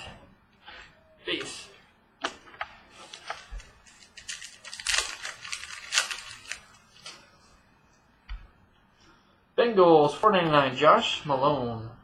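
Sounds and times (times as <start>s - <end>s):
foil pack and cards rustling: 2.9s - 7.2s.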